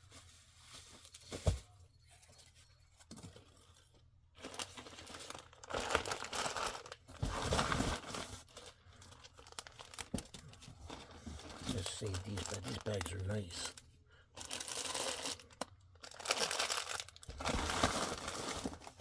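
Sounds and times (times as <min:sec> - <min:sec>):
plastic bags crinkling and tearing: 0:04.4 - 0:13.8, 0:14.4 - 0:19.0.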